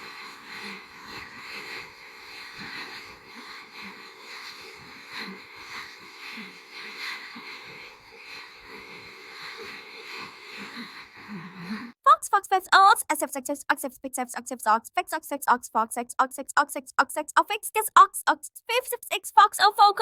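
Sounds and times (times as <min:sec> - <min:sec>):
garbled synthetic voice: 0:12.1 - 0:20.0.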